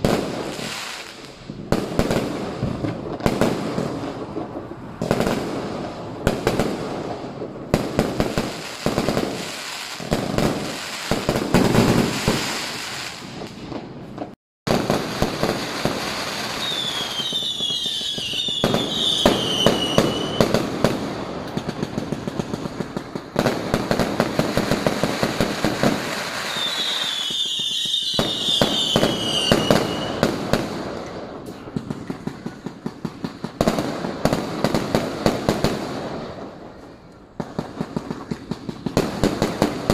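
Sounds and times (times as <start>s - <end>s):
firecrackers banging and crackling: 0.0s - 39.9s
falling firework whistle: 10.8s - 20.6s, 26.0s - 30.6s.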